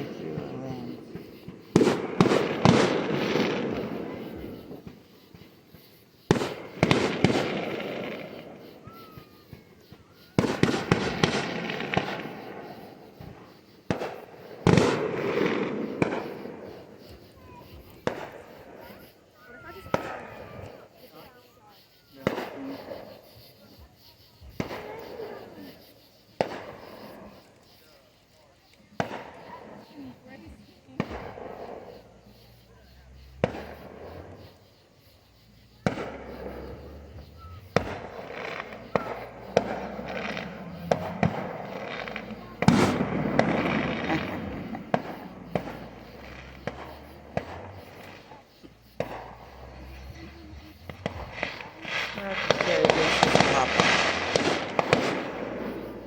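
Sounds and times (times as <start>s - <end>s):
fireworks bangs: 0.0s - 56.0s
rumble after bangs: 35.8s - 56.0s.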